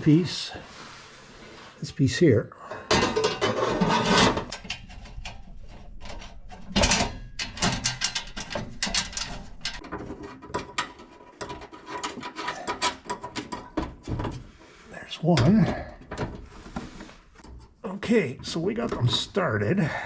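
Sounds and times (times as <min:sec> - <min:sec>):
rattling metal scrape: 0:02.9 - 0:14.9
metallic clicks and scrapes: 0:02.9 - 0:19.2.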